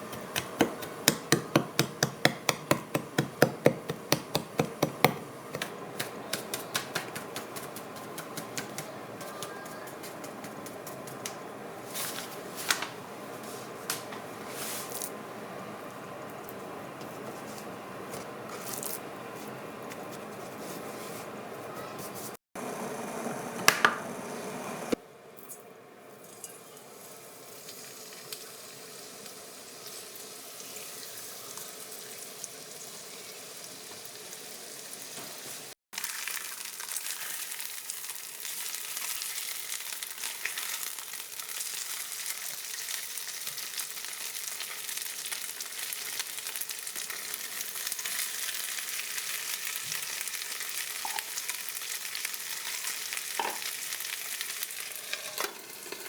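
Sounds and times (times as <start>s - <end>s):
food sizzling in a pan: 26.3s - 56.0s.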